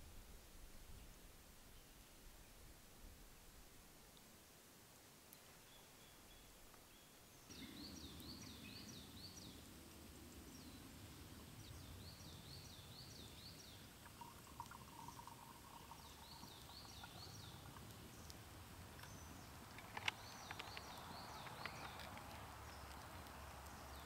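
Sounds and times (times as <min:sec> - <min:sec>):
faint outdoor background: 0:00.0 - 0:24.0
songbird singing: 0:05.3 - 0:24.0.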